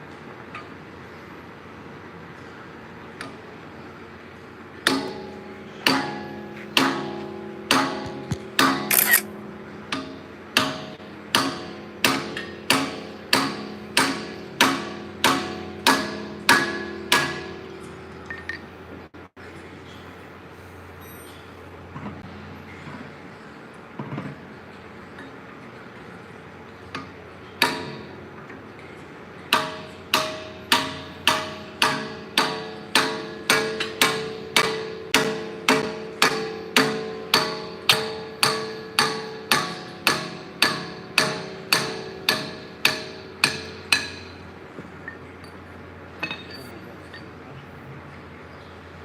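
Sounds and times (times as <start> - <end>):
hammer striking metal: 10.0 - 17.5, 29.5 - 44.4.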